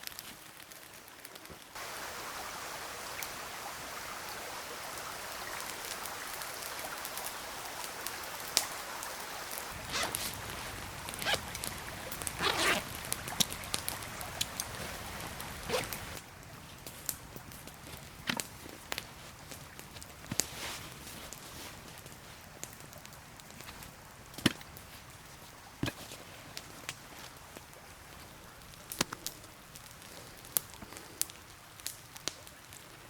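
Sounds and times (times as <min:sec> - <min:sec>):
forest stream rushing: 0:00.2 - 0:33.0
rustles and clicks: 0:09.7 - 0:22.8.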